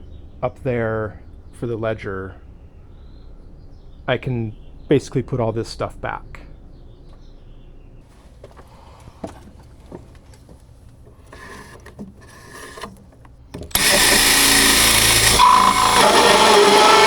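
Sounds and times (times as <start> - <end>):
tools clicking and knocking: 8.4 - 16.6
power tool running: 11.1 - 17.0.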